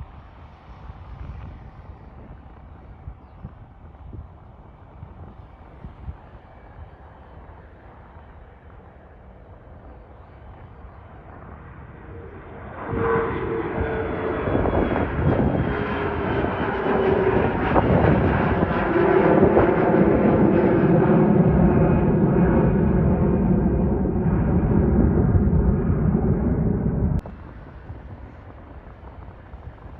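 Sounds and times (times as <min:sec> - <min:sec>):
jet engines passing: 0:06.8 - 0:29.9.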